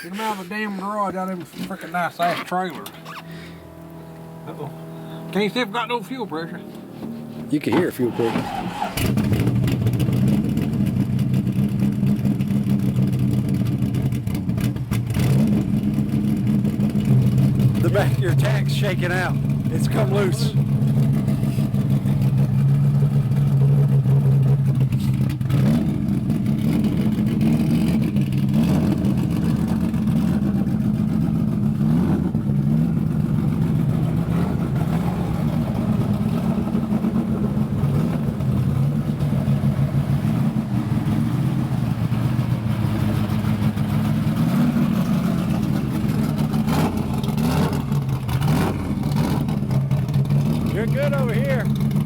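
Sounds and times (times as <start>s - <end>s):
car engine idling: 0.0s - 52.0s.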